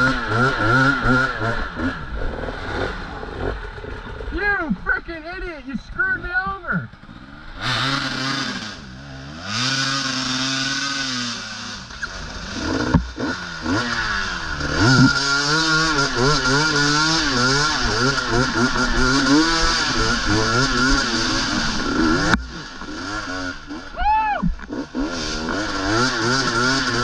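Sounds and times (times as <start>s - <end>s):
dirt bike engines revving: 0.0s - 27.0s.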